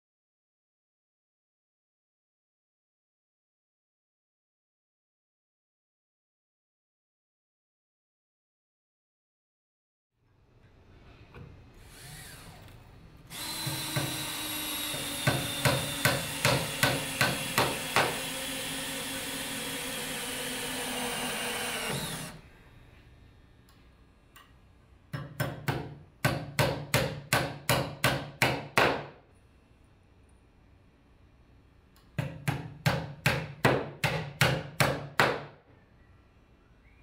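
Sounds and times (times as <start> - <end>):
power driver driving screw: 11.9 - 22.4
hammer blows driving nails: 13.4 - 22.4, 25.2 - 29.2, 32.2 - 35.5.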